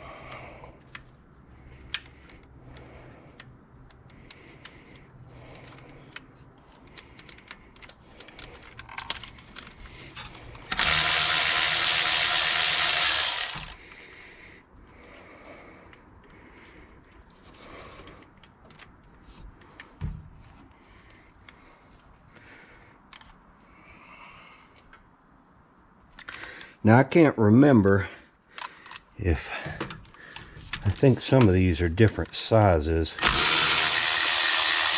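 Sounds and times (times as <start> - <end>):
power tool running: 10.7 - 13.8, 33.2 - 34.9
socket ratchet clicking: 10.7 - 13.8, 33.2 - 34.9.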